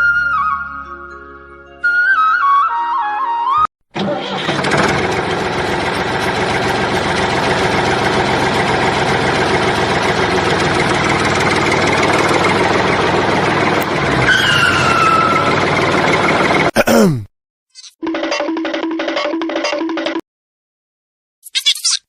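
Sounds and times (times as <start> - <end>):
engine running steadily: 4.0 - 16.7.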